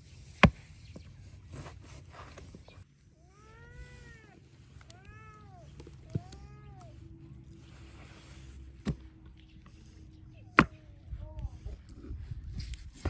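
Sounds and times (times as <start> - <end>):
cat meowing: 3.2 - 7.2.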